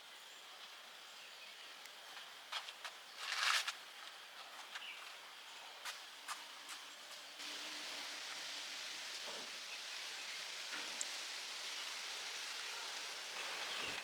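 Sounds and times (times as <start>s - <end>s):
steady high hiss: 0.0s - 14.0s
rustling noise: 2.5s - 7.3s.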